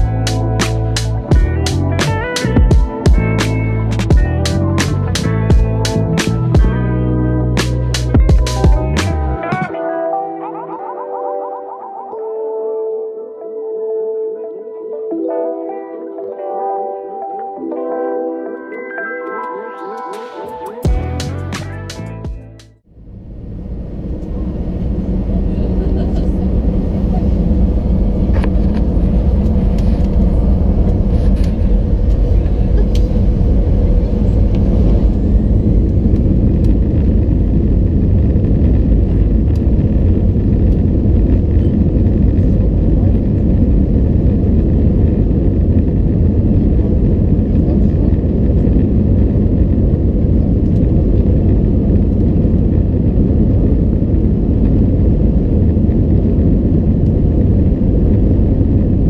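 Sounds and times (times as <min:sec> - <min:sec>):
airliner cabin engine rumble: 0:23.0 - 0:59.0.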